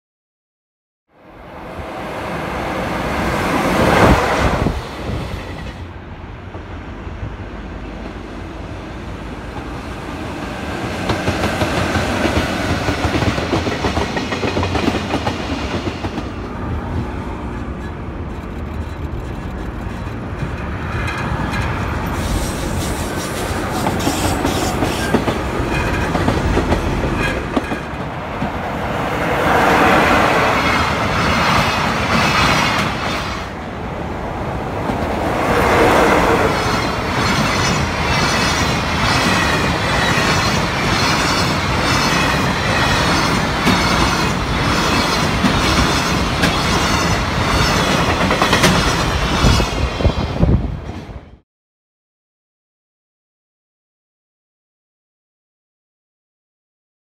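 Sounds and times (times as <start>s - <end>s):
train wheels clattering over rail joints: 17.8s - 28.6s.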